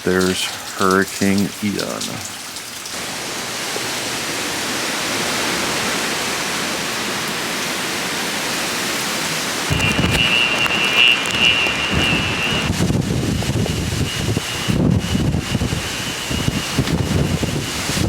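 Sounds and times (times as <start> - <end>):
heavy rain hissing: 0.0 - 18.0
high steady tone: 9.7 - 16.8
low rumbling: 9.7 - 18.0.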